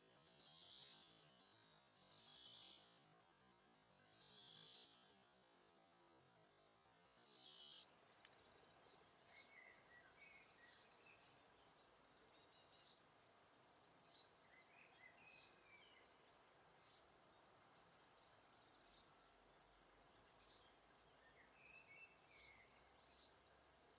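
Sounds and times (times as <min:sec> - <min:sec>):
small birds chirping: 0:00.0 - 0:03.0, 0:03.6 - 0:23.9
steady outdoor hiss: 0:00.0 - 0:23.9.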